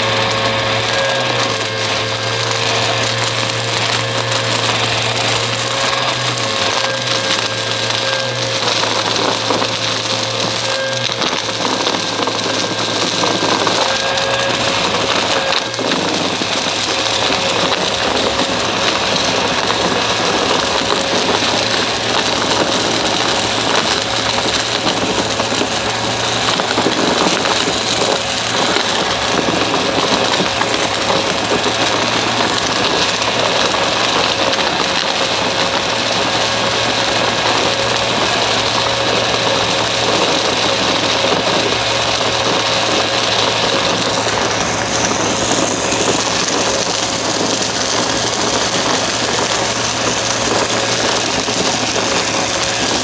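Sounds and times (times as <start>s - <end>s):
vacuum cleaner running: 0.0s - 53.0s.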